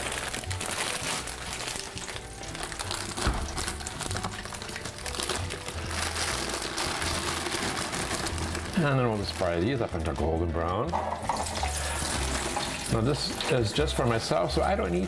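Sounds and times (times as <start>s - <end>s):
quiet background music with bass: 0.0s - 15.0s
fries sizzling in deep fryer oil: 11.2s - 14.7s.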